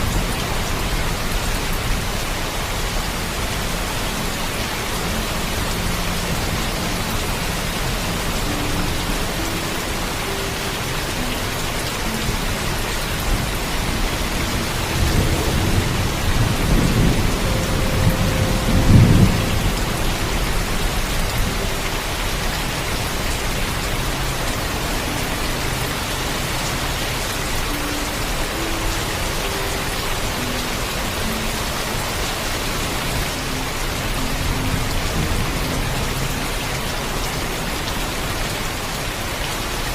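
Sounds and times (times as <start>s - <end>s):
heavy rain: 0.0s - 39.9s
thunder rumbling: 13.2s - 21.8s.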